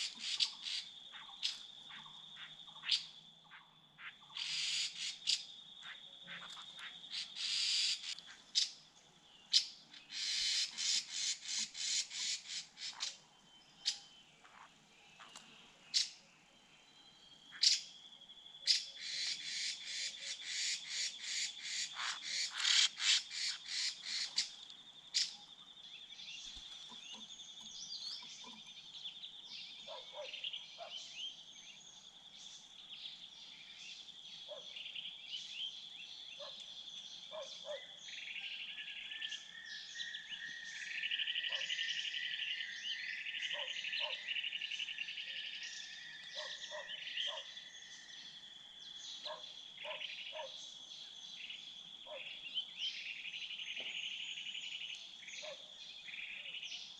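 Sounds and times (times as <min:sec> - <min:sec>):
sharp animal calls: 0:18.7 - 0:24.6.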